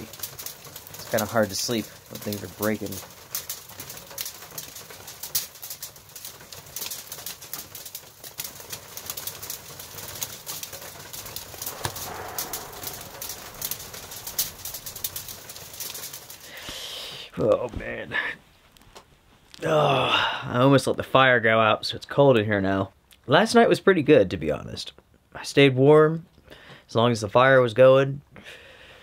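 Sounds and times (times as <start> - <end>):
sleet pattering on a roof: 0.0 - 16.7.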